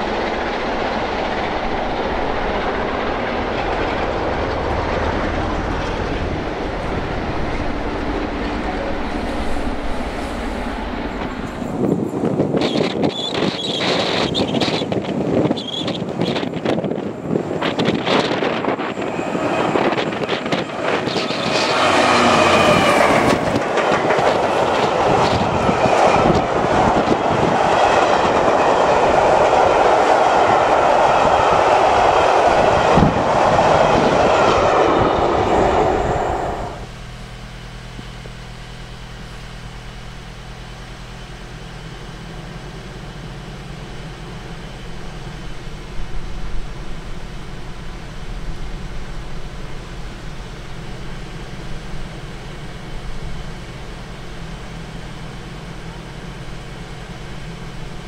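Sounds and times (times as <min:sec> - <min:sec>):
steam locomotive passing at speed: 0:00.0 - 0:38.0
wheels clacking over rail joints: 0:12.2 - 0:31.2.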